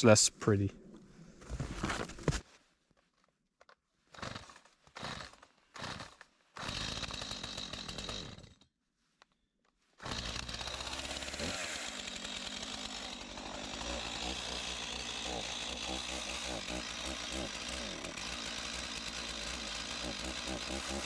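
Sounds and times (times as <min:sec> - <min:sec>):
chainsaw running: 0:04.1 - 0:08.6, 0:10.0 - 0:21.0.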